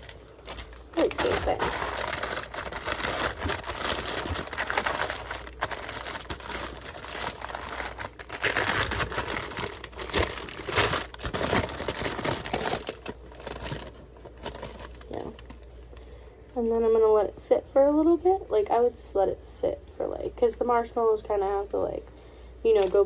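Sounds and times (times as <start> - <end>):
plastic bag crinkling: 0.0 - 16.1, 22.7 - 23.0.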